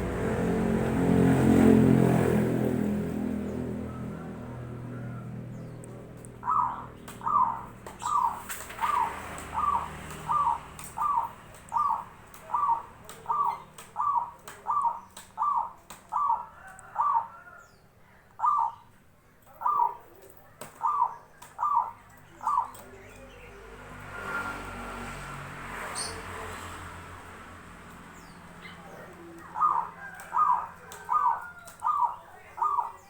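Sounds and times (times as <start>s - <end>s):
zebra dove calling: 3.9s - 17.6s, 18.3s - 23.2s, 28.2s - 33.0s.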